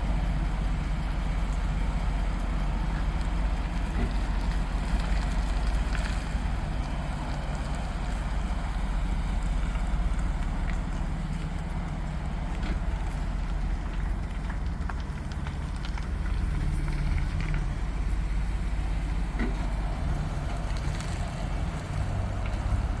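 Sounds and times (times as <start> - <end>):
van engine idling: 0.0 - 23.0.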